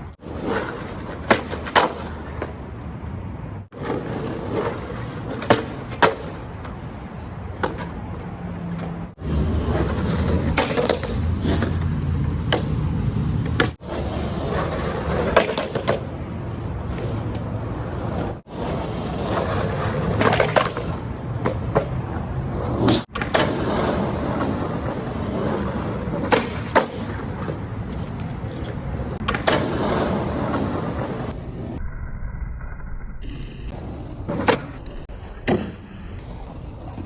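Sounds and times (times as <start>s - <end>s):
skateboard wheels rolling on pavement: 0.0s - 31.8s, 33.7s - 37.0s
skateboard clacking: 0.1s - 31.4s.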